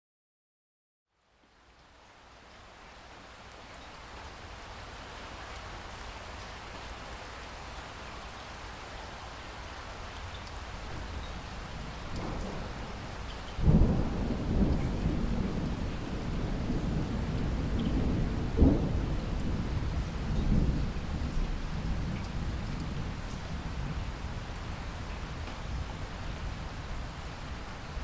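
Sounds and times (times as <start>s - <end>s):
steady rain hiss: 1.1s - 28.0s
thunder rumbling: 10.9s - 24.0s.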